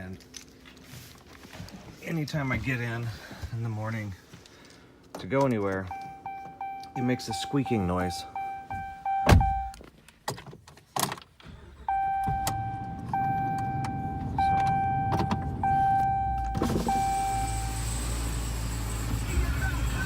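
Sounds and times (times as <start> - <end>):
engine starting and idling: 11.4 - 15.0, 15.6 - 20.0.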